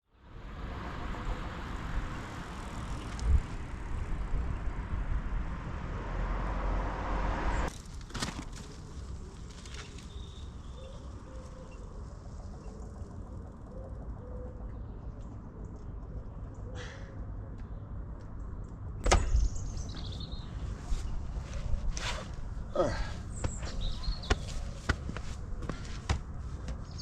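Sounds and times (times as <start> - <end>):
bicycle road noise: 0.1 - 27.0
wind rumble: 0.2 - 8.0.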